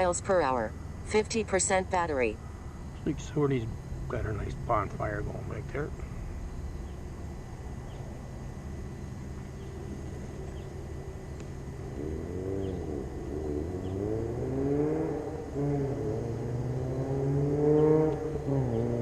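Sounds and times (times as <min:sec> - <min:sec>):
vehicle engine revving: 0:03.0 - 0:19.0.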